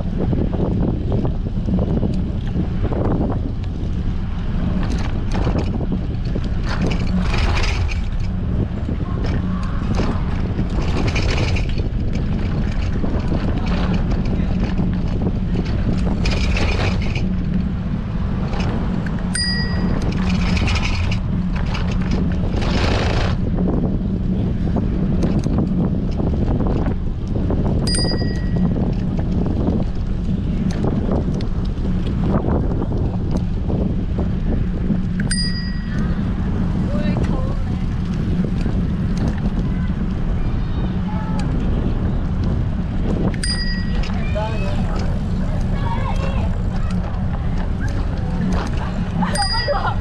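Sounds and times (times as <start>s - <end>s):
wind buffeting microphone: 0.0s - 50.0s
bicycle bell ding: 19.3s - 20.0s, 27.9s - 28.6s, 35.2s - 36.2s, 43.4s - 44.2s, 49.3s - 49.9s.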